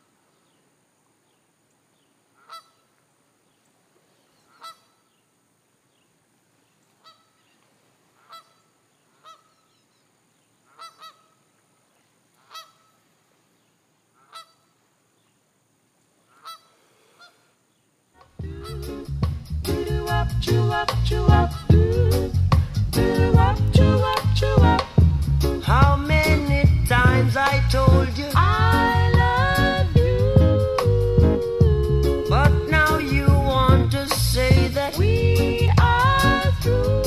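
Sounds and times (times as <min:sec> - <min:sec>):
goose honking: 0:02.4 - 0:02.9, 0:04.5 - 0:05.1, 0:07.0 - 0:07.4, 0:08.2 - 0:09.8, 0:10.6 - 0:11.4, 0:12.4 - 0:13.0, 0:14.2 - 0:14.8, 0:16.3 - 0:17.5, 0:18.2 - 0:19.0, 0:21.3 - 0:21.9
loud music: 0:18.4 - 0:37.0.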